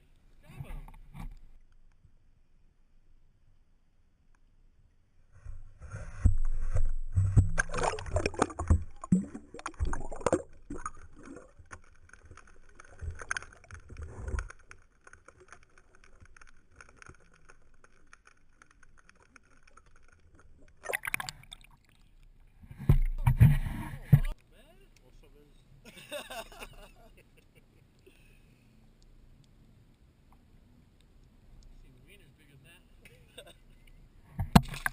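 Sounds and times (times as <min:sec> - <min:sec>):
water splashing around a boat: 0:05.8 - 0:17.5.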